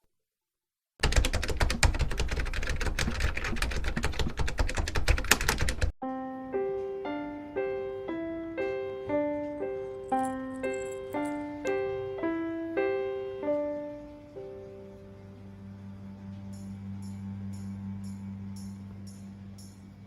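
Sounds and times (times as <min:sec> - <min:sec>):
gentle piano music: 0:06.0 - 0:20.0.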